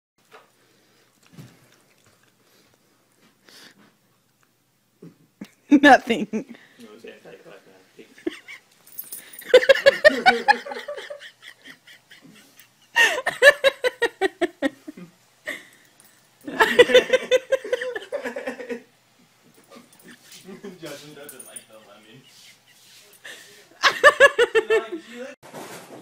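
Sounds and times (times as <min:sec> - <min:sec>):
person laughing hard: 0:09.5 - 0:15.6, 0:16.5 - 0:18.8, 0:23.8 - 0:25.0.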